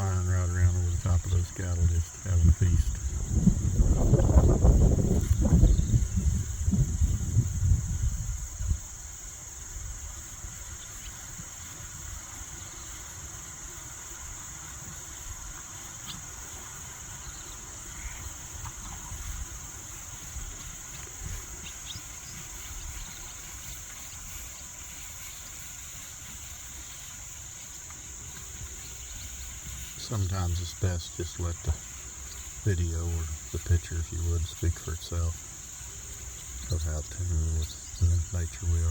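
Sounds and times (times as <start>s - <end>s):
wind buffeting microphone: 0.0s - 10.7s
insect chorus drone: 0.0s - 38.9s.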